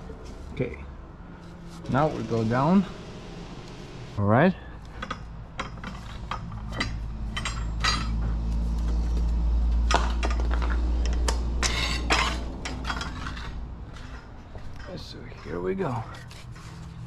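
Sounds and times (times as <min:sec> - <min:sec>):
metal clinks and knocks: 0:04.8 - 0:17.0.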